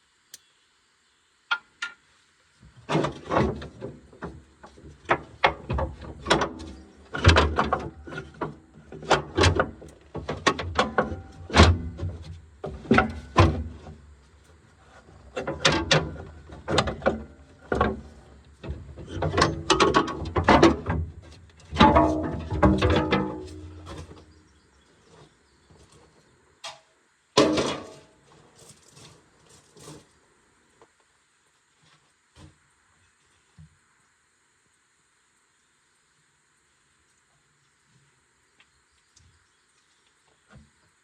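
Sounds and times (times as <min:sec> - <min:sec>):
hand tools clanking on metal: 0:21.7 - 0:24.4.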